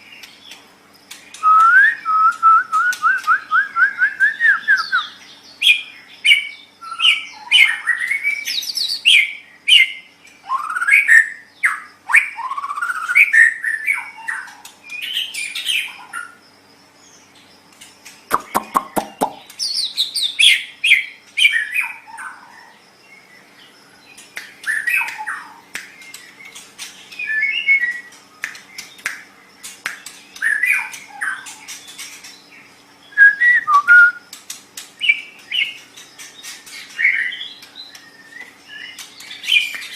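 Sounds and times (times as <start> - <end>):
bird singing whistled phrases: 1.3 - 15.9, 27.1 - 28.2, 33.0 - 34.3.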